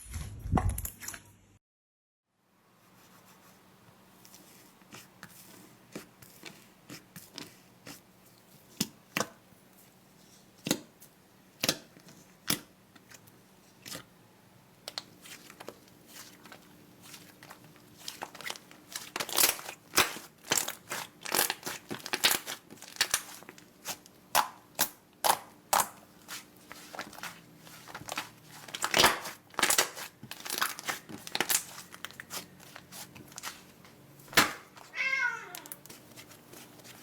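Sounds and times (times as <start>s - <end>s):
slime crackling and popping: 14.9s - 26.0s, 26.8s - 33.6s.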